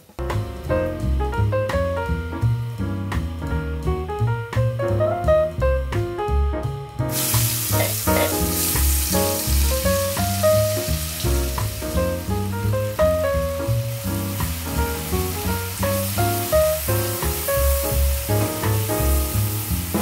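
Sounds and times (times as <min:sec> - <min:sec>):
background music: 0:00.1 - 0:20.0
spice paste sizzling in oil: 0:07.1 - 0:20.0.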